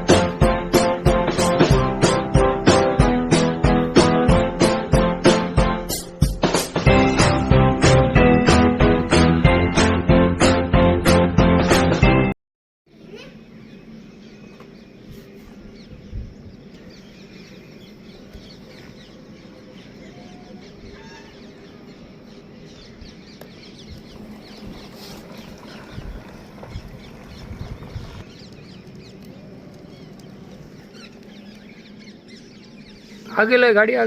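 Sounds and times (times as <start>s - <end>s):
steady low hum: 12.9s - 34.0s.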